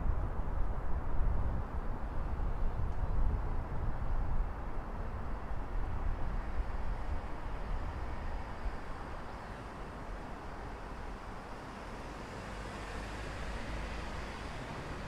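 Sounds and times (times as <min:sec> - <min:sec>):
road traffic rumble: 0:01.4 - 0:15.0
vehicle approaching: 0:10.9 - 0:15.0.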